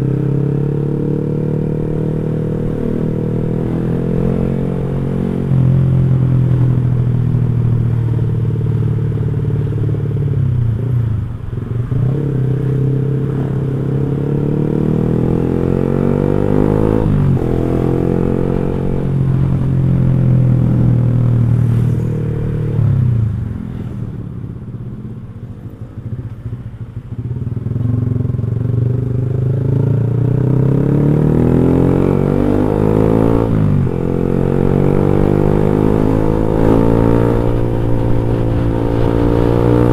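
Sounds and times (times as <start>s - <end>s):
motorcycle exhaust revving: 26.0s - 39.9s.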